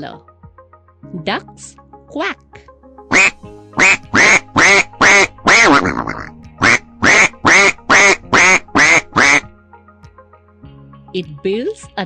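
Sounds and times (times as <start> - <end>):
soft background music: 0.0 - 12.0
duck quacking: 3.1 - 9.5.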